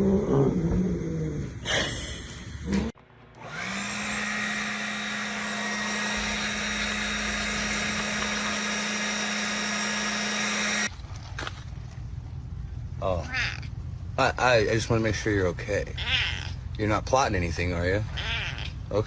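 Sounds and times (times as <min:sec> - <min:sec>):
electric appliance motor humming: 0:03.3 - 0:10.9.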